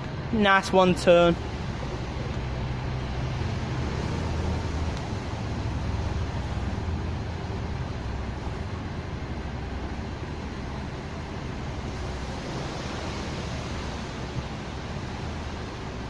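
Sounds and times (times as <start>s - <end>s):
train diesel engines rumbling: 0.0s - 12.7s.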